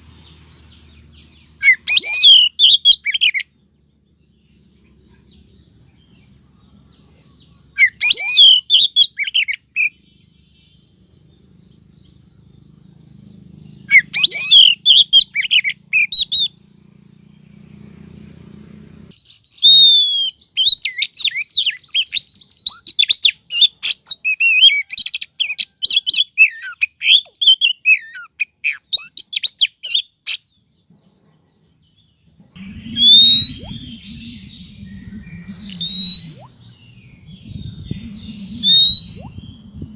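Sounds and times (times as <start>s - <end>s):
bird whistling and chirping: 0.8s - 3.5s, 6.3s - 12.2s, 13.6s - 16.6s, 19.2s - 30.5s, 32.6s - 39.9s.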